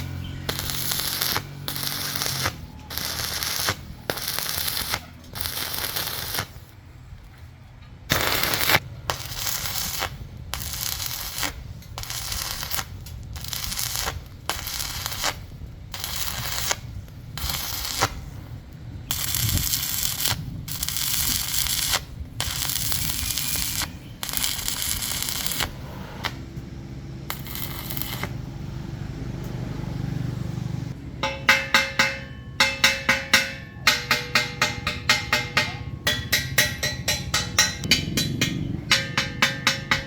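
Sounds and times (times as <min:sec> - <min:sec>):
percussive music: 0:31.2 - 0:40.0
rasping work noise: 0:31.2 - 0:40.0.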